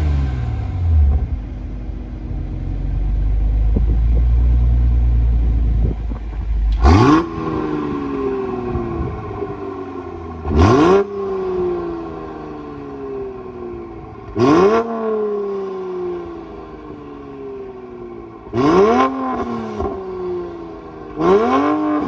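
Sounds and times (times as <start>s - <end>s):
car engine idling and revving: 0.0s - 22.0s.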